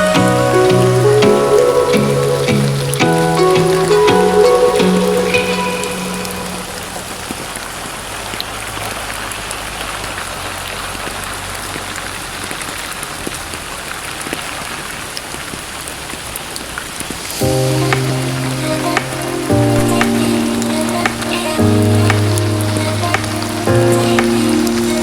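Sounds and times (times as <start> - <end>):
musical notes: 0.0 - 7.4, 17.4 - 25.0
steady rain hissing: 0.0 - 25.0.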